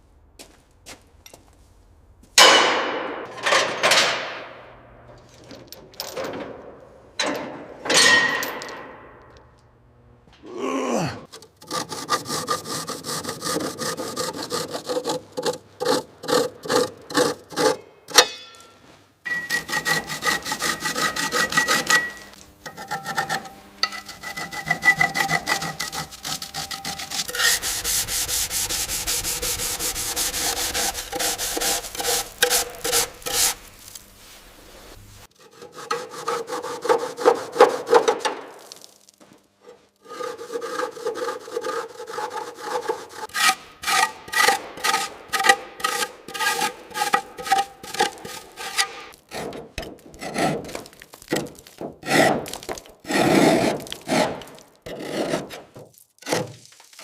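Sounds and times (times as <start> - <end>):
rhythmic sanding or filing strokes: 11.6 - 17.8, 19.4 - 38.0, 40.0 - 49.5.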